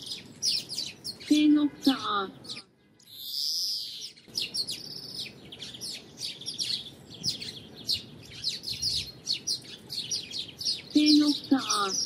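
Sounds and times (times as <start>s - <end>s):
greenfinch chirping and twittering: 0.0s - 12.0s.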